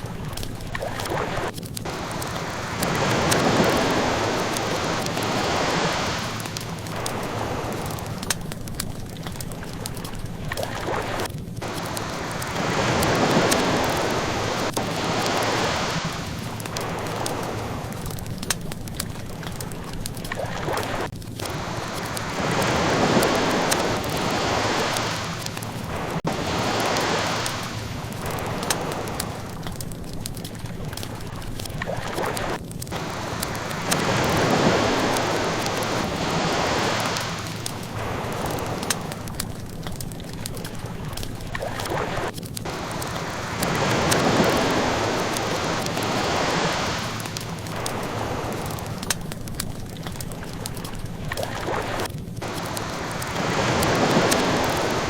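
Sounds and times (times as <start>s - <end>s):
ocean waves washing in: 0.0s - 55.0s
wood fire pops and crackles: 0.0s - 55.0s.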